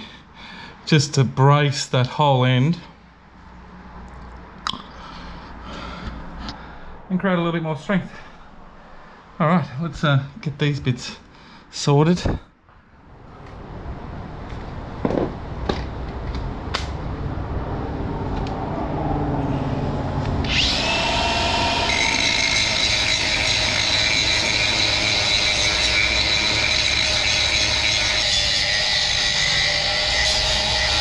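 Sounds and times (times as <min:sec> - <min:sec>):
power tool whining: 0:20.4 - 0:31.0.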